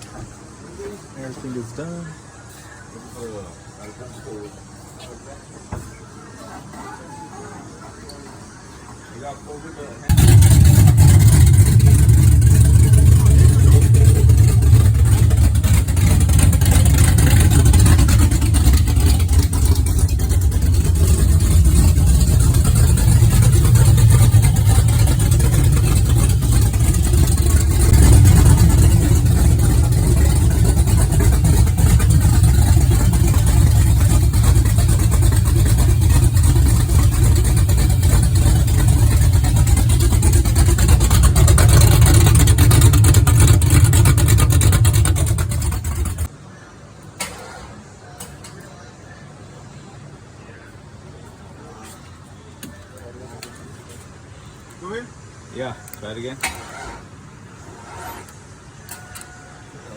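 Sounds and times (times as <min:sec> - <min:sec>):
vehicle engine running loudly: 0:10.1 - 0:46.3.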